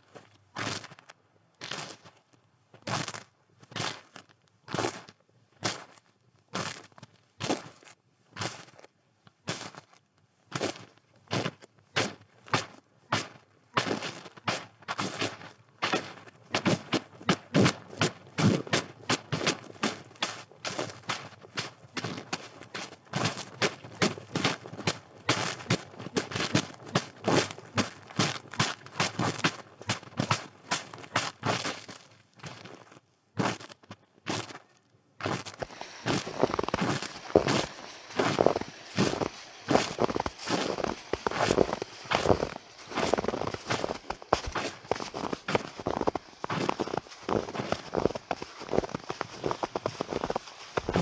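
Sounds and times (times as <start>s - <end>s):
footsteps crunching through snow: 15.0s - 31.4s, 35.3s - 51.0s.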